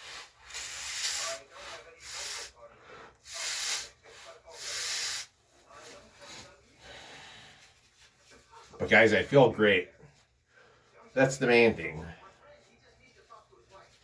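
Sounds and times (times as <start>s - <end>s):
person blowing nose: 0.0s - 2.6s, 3.2s - 5.4s.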